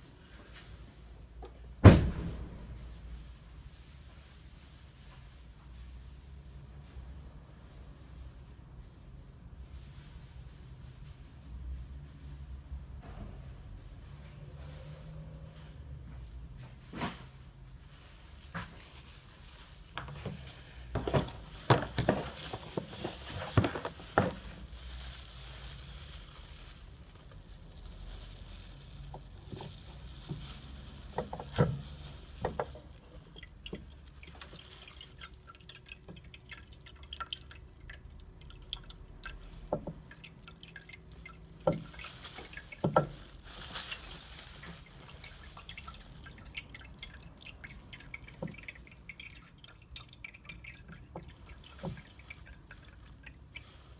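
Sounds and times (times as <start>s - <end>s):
fuel dripping: 19.9s - 53.9s.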